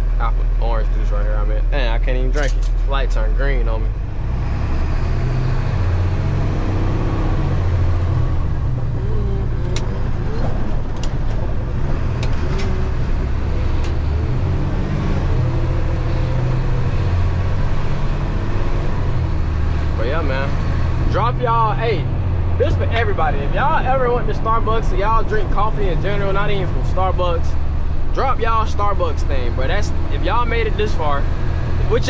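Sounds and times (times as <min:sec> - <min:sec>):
truck engine low rumble: 0:00.0 - 0:32.0.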